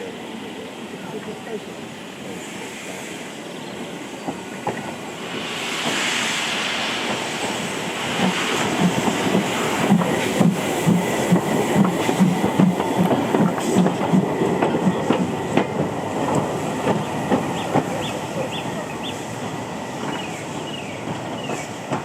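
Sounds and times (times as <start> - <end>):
steam train chuffing: 0.0 - 22.0
train rumble: 0.0 - 22.0.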